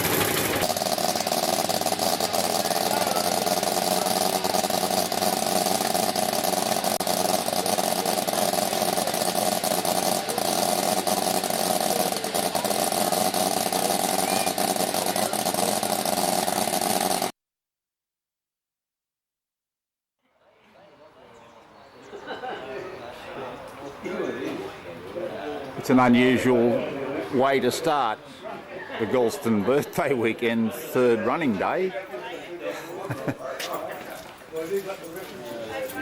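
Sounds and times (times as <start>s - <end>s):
miniature locomotive hissing: 0.0s - 17.3s.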